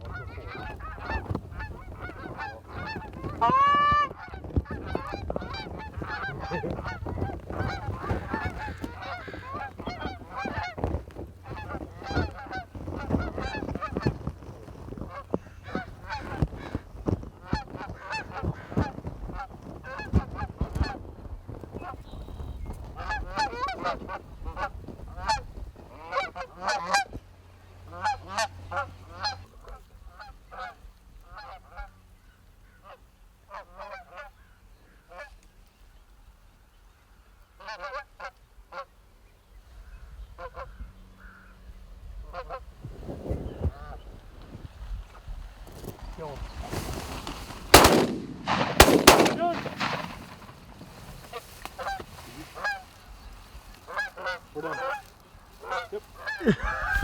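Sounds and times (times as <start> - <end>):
loud drawn-out goose honk: 0.0 - 14.1, 22.4 - 27.2, 47.1 - 52.8, 53.9 - 57.0
geese honking and clucking: 0.0 - 21.0, 21.8 - 27.2, 27.8 - 35.4, 37.6 - 38.9, 46.1 - 57.0.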